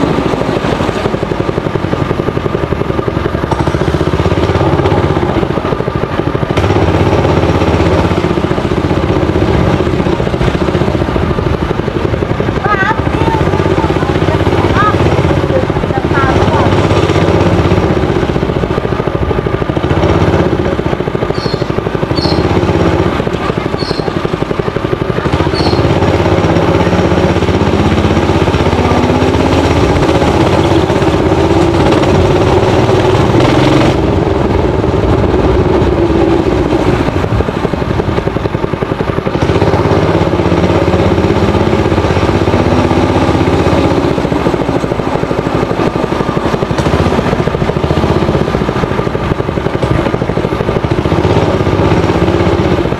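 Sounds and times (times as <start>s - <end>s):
small engine revving: 0.0s - 52.9s.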